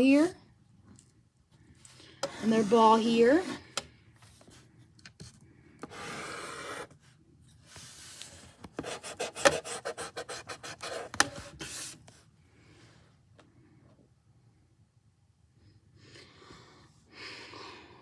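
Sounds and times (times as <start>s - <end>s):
pencil strokes on paper: 2.2s - 3.6s, 8.8s - 12.0s.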